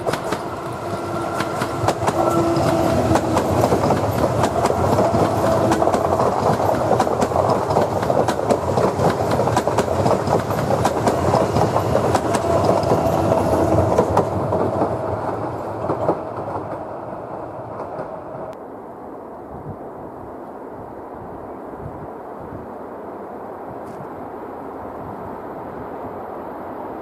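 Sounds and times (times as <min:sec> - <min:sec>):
wheels clacking over rail joints: 0:00.0 - 0:18.6
train whine: 0:00.0 - 0:27.0.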